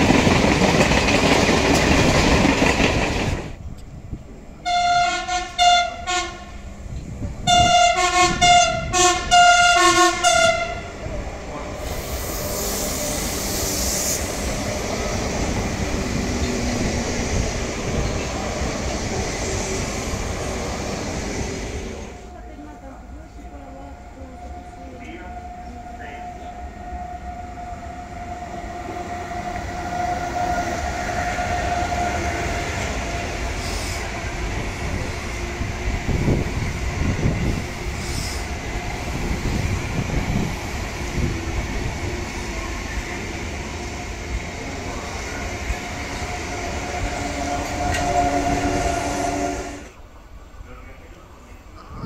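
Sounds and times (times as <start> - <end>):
train wheels rumbling: 0.0 - 52.0.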